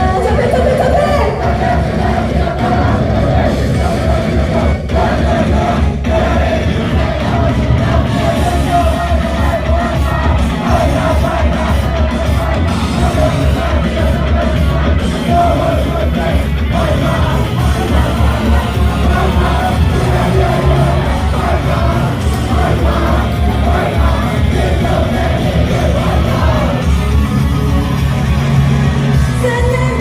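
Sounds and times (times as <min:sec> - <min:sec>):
woman singing: 0:00.0 - 0:01.5, 0:29.4 - 0:30.0
heavy drum beat: 0:00.0 - 0:30.0
pop rock song over loudspeakers: 0:00.0 - 0:30.0.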